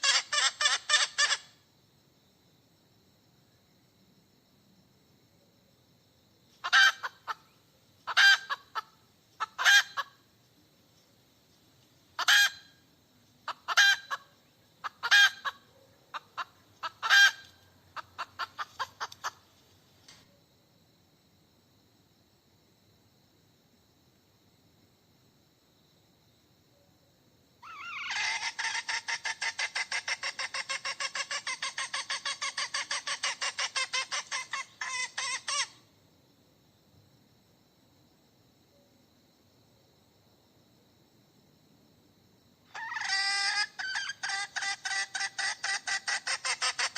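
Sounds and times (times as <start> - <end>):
hen cackling: 0.0 - 1.6, 6.6 - 10.2, 12.2 - 12.7, 13.4 - 19.5, 27.6 - 35.8, 42.7 - 46.9.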